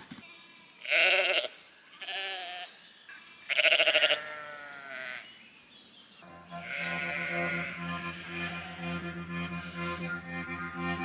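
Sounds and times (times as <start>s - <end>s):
animal bleating: 0.2s - 2.7s, 3.4s - 5.3s, 6.4s - 11.0s
music: 6.2s - 11.0s.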